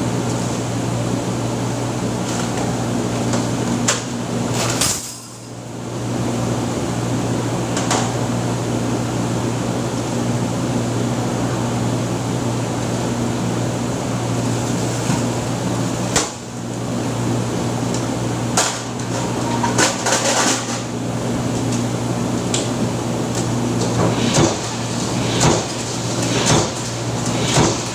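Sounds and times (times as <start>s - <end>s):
machinery electric hum: 0.0s - 27.9s.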